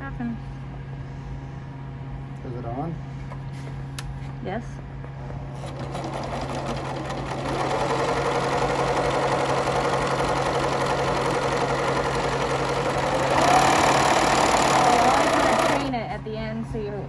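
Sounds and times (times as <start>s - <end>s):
serger motor humming and whirring: 5.4s - 16.0s.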